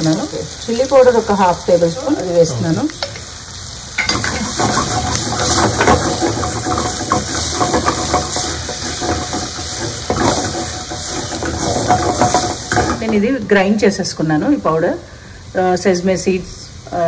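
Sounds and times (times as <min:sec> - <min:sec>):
onions sizzling in oil: 0:00.0 - 0:17.0
spatula scraping pan: 0:04.0 - 0:13.2.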